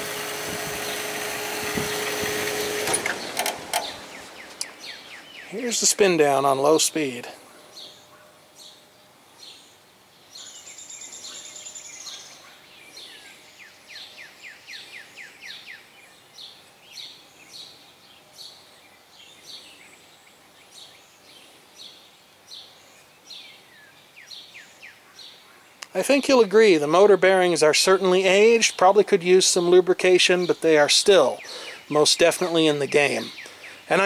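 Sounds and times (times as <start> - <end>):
box fan whooshing: 0.0 - 4.5
small birds calling: 0.0 - 34.0.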